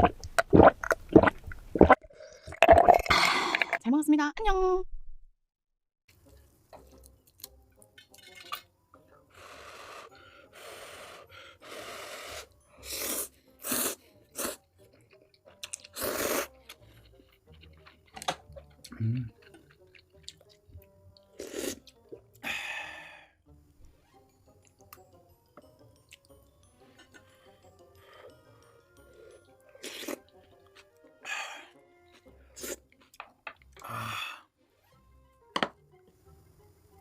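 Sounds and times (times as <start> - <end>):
noisy slurping: 0.0 - 3.8
wet chewing and smacking: 14.6 - 22.4.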